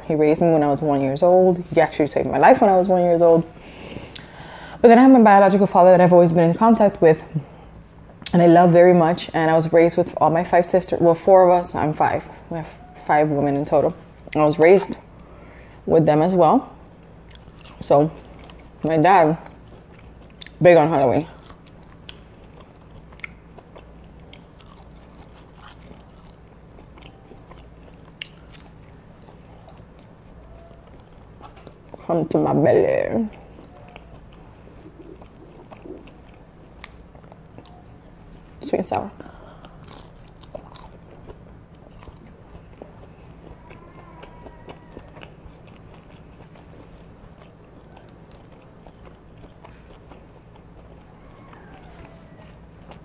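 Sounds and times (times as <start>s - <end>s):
soft chewing: 0.8s - 4.8s, 16.7s - 53.0s
wet mouth sounds: 33.3s - 37.7s
biting into food: 39.7s - 53.0s.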